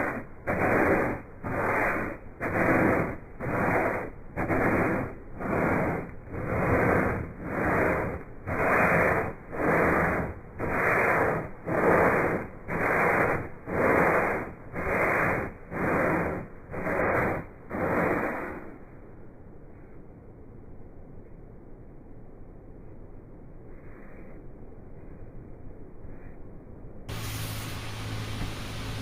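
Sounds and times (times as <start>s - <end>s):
sandpaper rubbing on textured deck: 0.0s - 18.7s.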